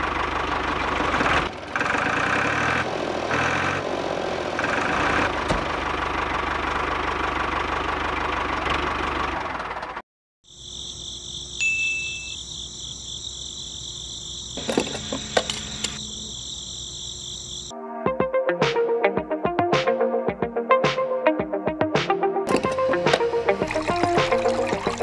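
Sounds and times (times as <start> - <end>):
model tractor engine running: 0.0 - 10.0, 14.6 - 16.1
high-pitched insect chirring: 10.5 - 17.7
hose clicking onto tap: 22.5 - 23.2.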